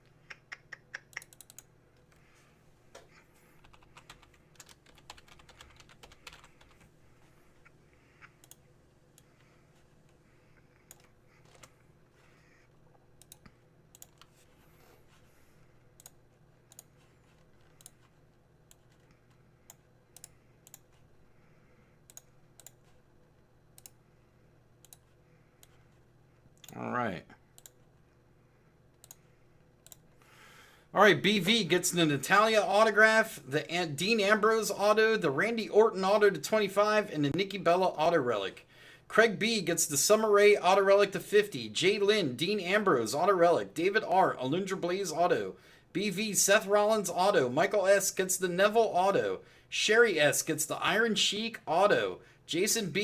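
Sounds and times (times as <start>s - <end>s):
faint low hum: 0.0s - 53.0s
computer keyboard typing: 0.7s - 2.2s, 3.6s - 6.9s, 10.8s - 11.8s, 13.2s - 15.2s, 16.0s - 21.1s, 27.6s - 27.9s, 29.0s - 30.1s.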